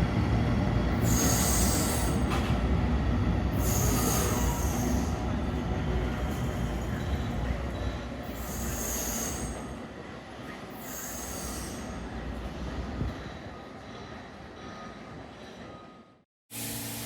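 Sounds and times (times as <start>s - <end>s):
subway train rumble: 0.0s - 17.0s.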